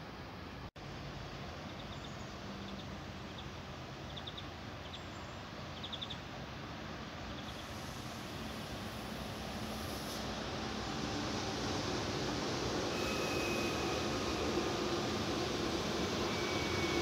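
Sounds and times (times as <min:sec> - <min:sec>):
high-speed train approaching: 0:00.0 - 0:17.0
outdoor background noise: 0:00.0 - 0:17.0
faint bird chirps: 0:01.7 - 0:06.2.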